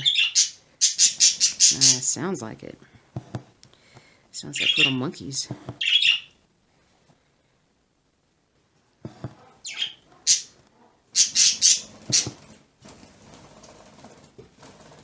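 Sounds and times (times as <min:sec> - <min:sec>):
bird squawking: 0:00.0 - 0:02.0, 0:04.6 - 0:05.1, 0:05.8 - 0:06.4, 0:09.6 - 0:10.6, 0:11.2 - 0:12.4.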